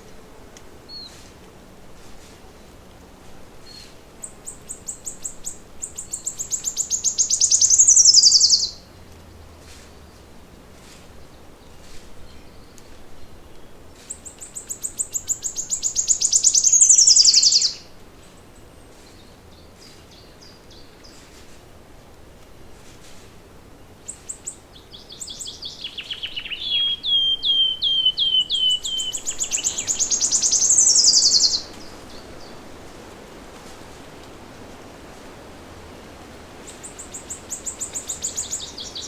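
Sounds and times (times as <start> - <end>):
faint bird chirps: 3.6 - 8.8, 12.3 - 17.8, 24.1 - 32.6
songbird fast high trill: 6.0 - 8.8, 15.3 - 17.8, 25.3 - 31.7.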